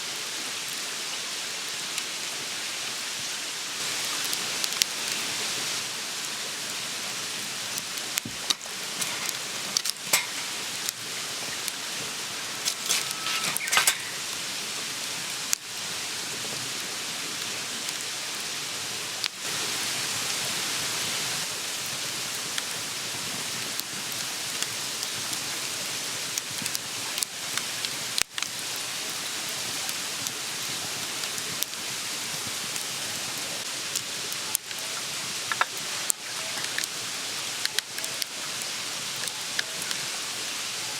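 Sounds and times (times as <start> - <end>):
steady hissing noise: 0.0 - 40.9
crackling ticks: 7.7 - 11.0, 33.9 - 37.0, 37.6 - 38.3.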